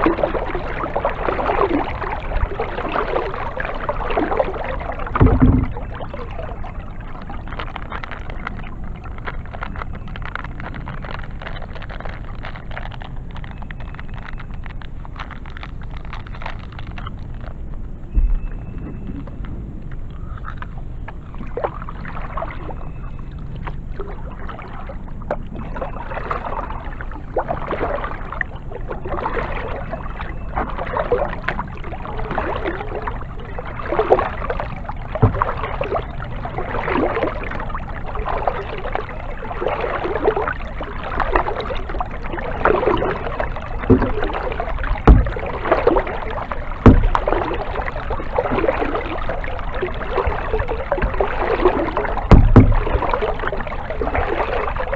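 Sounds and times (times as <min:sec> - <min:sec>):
paddle strokes splashing in water: 0:00.0 - 0:54.9
paddle knocks: 0:05.0 - 0:06.4, 0:35.1 - 0:36.1, 0:42.6 - 0:48.8, 0:50.0 - 0:54.7.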